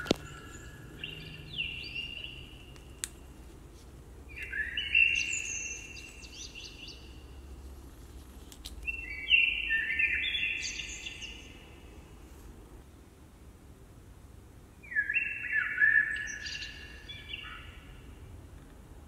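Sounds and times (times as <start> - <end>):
bird chirping with echoes: 0.0 - 2.9, 4.3 - 7.4, 8.8 - 11.7, 14.8 - 18.1.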